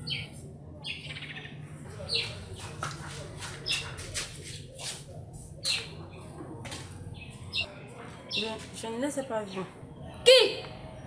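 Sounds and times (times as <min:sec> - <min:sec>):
small birds chirping: 0:00.0 - 0:02.8, 0:03.4 - 0:04.8, 0:05.6 - 0:06.3, 0:07.2 - 0:08.9.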